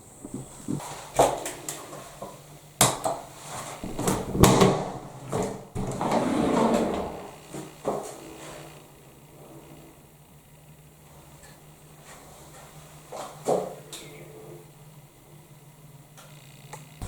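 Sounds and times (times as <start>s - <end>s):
scraping and rustling: 0.0s - 1.2s.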